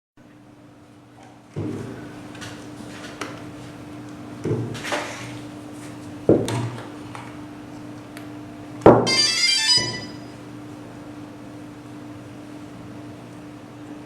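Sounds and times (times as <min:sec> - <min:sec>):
low electrical hum: 0:00.2 - 0:14.0
high electronic trilling beep: 0:09.1 - 0:10.4.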